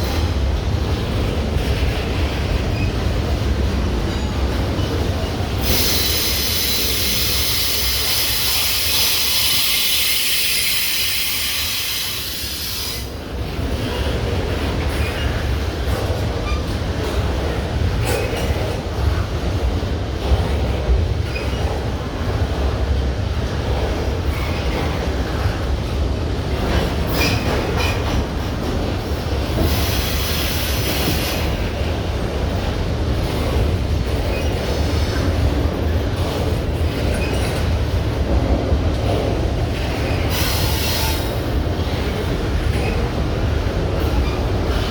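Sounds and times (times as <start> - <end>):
train rumbling past: 0.0 - 44.9
high wheel squeal: 5.7 - 13.1.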